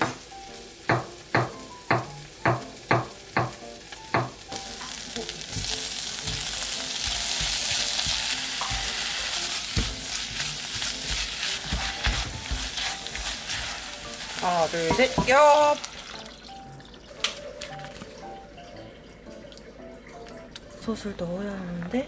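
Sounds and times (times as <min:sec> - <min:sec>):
meat sizzling in a pot: 0:00.0 - 0:18.4
spatula stirring in a pot: 0:04.7 - 0:15.8
knife chopping on wooden board: 0:05.5 - 0:09.1, 0:09.7 - 0:13.0.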